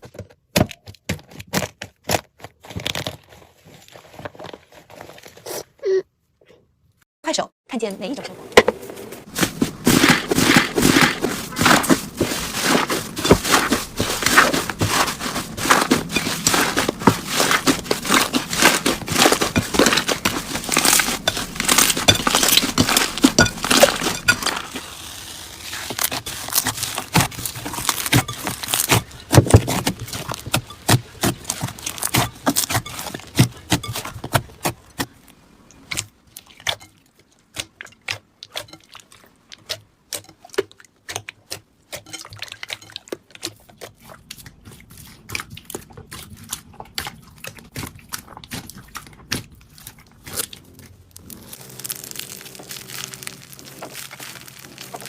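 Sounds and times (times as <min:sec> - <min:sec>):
slime squelch: 0:09.2 - 0:55.0
slime crackling and popping: 0:12.6 - 0:33.1, 0:47.7 - 0:55.0.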